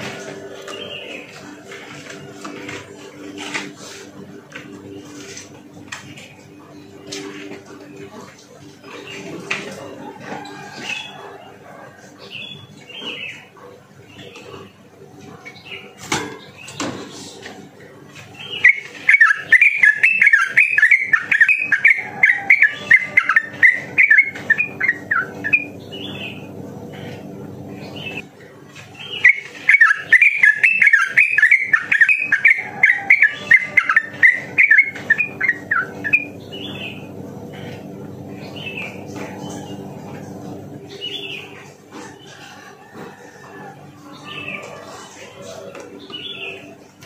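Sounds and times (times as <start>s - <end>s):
bird singing bubbling notes: 18.4s - 26.6s, 29.0s - 37.6s.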